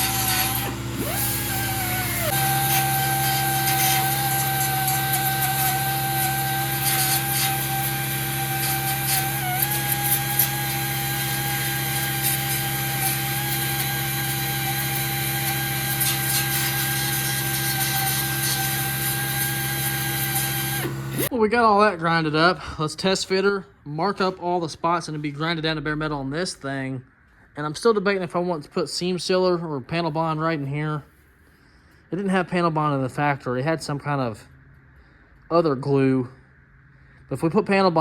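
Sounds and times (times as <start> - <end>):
power sander grinding metal: 0.0 - 21.3.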